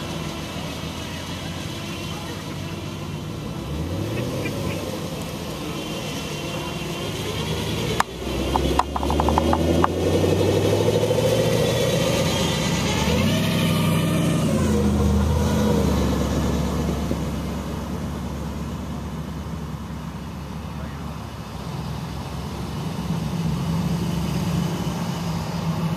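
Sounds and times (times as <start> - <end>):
car engine revving past: 0.0 - 20.0
sharp exhaust pops: 7.9 - 10.1.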